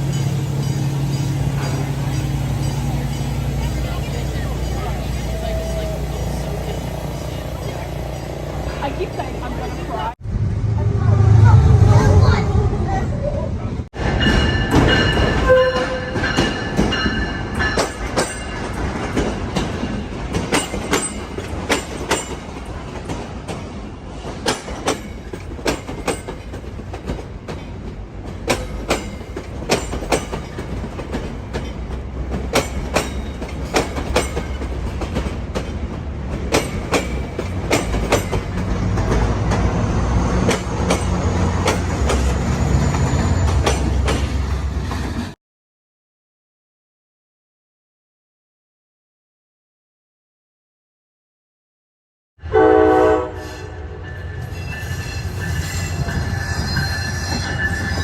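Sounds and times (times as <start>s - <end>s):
deep train rumble: 0.0s - 45.4s, 52.4s - 58.0s
train wheels clicking over rail joints: 14.2s - 45.4s.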